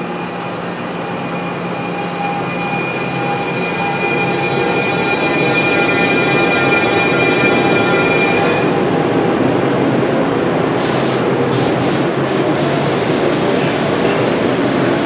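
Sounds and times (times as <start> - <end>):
high wheel squeal: 0.0 - 9.0
train wheels rumbling: 0.0 - 15.0.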